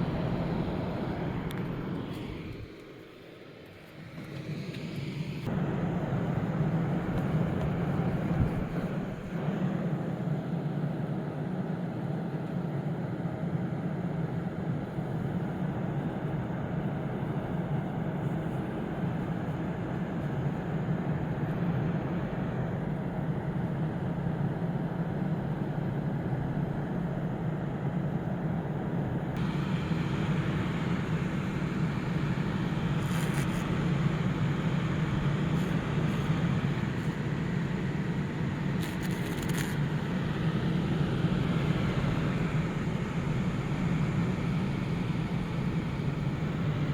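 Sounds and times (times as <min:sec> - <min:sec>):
electric fan humming: 0:24.7 - 0:46.9.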